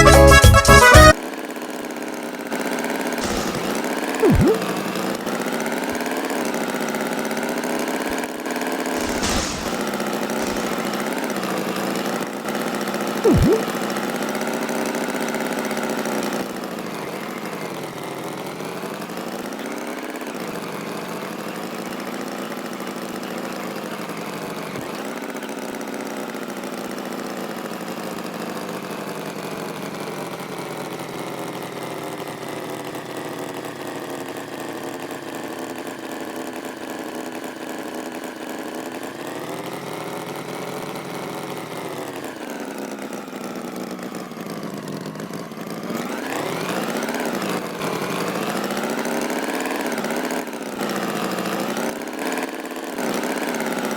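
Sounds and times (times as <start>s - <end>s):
tractor engine running: 3.2s - 5.4s, 9.0s - 12.0s.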